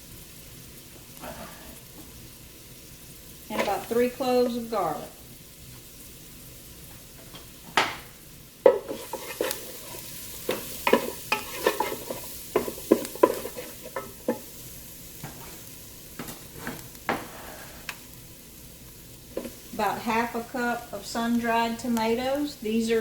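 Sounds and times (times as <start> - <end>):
vegetables sizzling in oil: 0.0 - 23.0
utensil knocking and scraping pot: 3.5 - 4.6, 8.6 - 14.5, 19.3 - 19.6.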